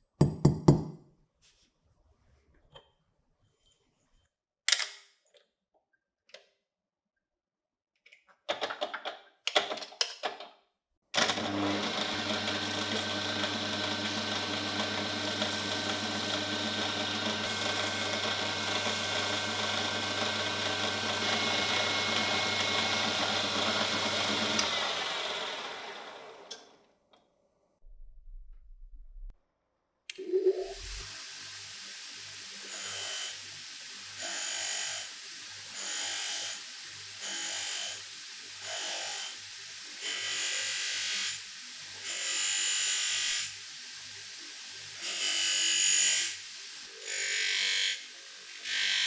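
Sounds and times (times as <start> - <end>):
clicks and handling knocks: 8.0 - 10.6
coffee grinder motor humming: 11.2 - 26.7, 30.7 - 49.0.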